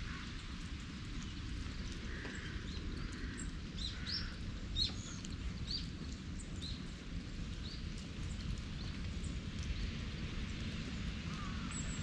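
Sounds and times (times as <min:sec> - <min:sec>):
low outdoor rumble: 0:00.0 - 0:12.0
small birds chirping: 0:00.4 - 0:09.9.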